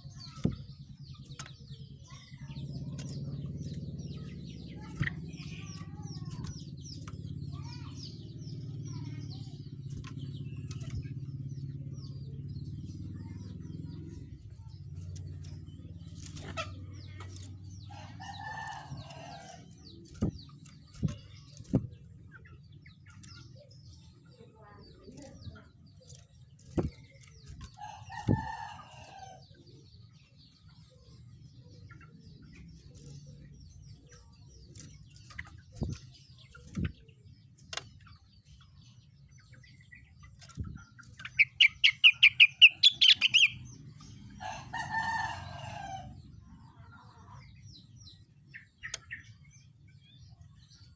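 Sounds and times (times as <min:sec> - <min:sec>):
knocks and clicks from cage: 0:00.0 - 0:46.4, 0:47.1 - 0:50.9.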